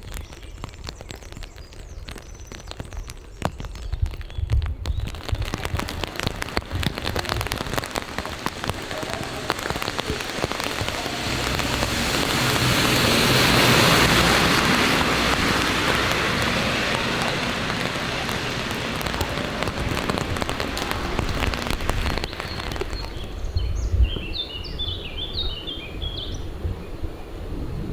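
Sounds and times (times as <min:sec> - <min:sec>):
rain dripping on hard surfaces: 0:00.0 - 0:26.4
rushing water: 0:05.0 - 0:25.9.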